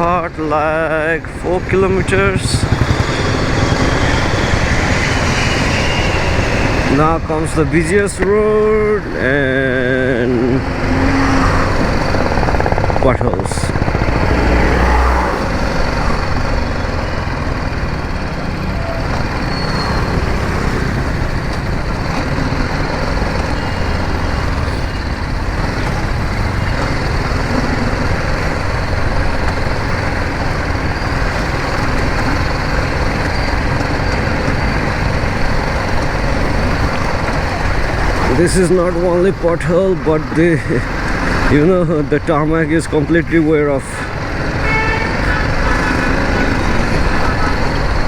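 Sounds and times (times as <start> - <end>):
motorcycle engine running: 0.0 - 48.0
wind and road noise: 0.0 - 48.0.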